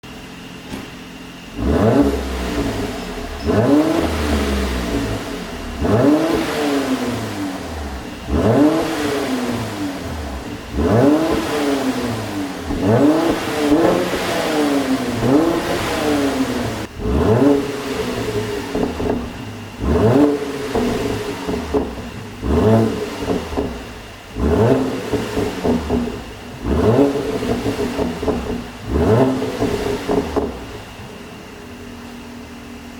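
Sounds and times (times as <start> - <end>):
car engine revving: 1.1 - 32.8
exhaust pops and crackles: 7.8 - 14.5, 16.7 - 31.2.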